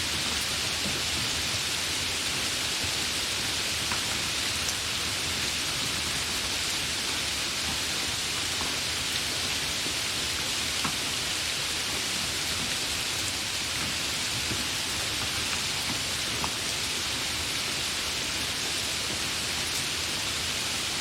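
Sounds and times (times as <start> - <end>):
steady rain hiss: 0.0 - 21.0
raindrop ticks: 12.5 - 16.8.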